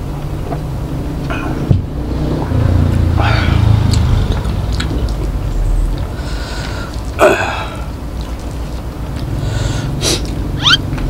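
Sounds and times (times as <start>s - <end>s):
person chewing food: 3.0s - 10.9s
loud sniff: 9.4s - 10.3s.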